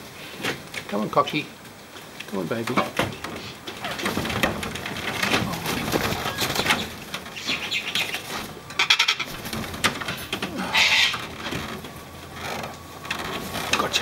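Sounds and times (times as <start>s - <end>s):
wing flapping: 2.8s - 14.0s
cockatoo harsh screech: 10.6s - 11.2s.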